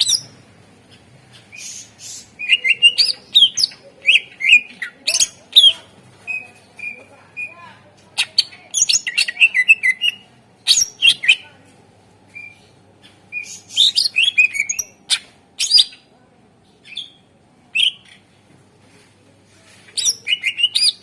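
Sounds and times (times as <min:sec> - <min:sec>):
bird singing chirps and whistles: 0:01.6 - 0:04.7, 0:13.3 - 0:16.0, 0:20.0 - 0:21.0.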